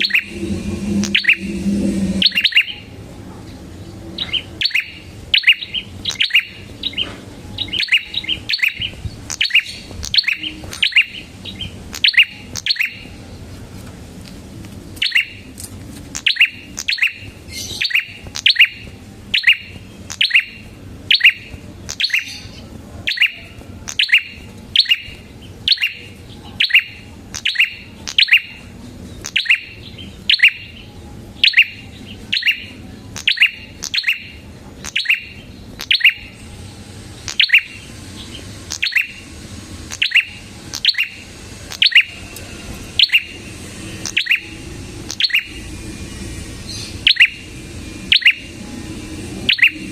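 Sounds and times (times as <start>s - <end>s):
bird sharp chirps: 0.0s - 2.9s, 4.2s - 13.0s, 16.2s - 22.5s, 31.4s - 36.4s, 37.3s - 37.9s, 38.7s - 39.2s, 39.9s - 42.2s, 44.0s - 44.5s, 45.1s - 45.7s, 46.7s - 47.5s.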